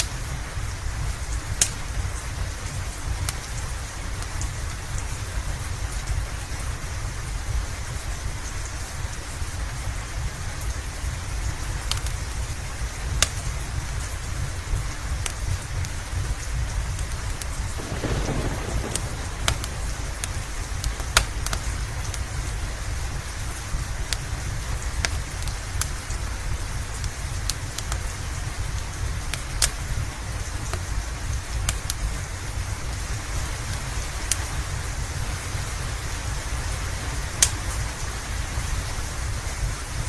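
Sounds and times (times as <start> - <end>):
wood fire crackling and popping: 0.0 - 5.2, 11.4 - 40.0
constant low rumble: 0.0 - 40.0
steady rain: 0.0 - 40.0.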